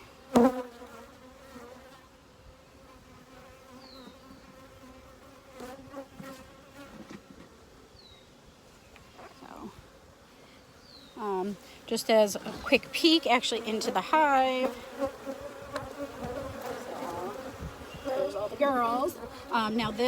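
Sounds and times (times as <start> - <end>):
honeybees buzzing: 2.8 - 8.1, 9.0 - 20.0.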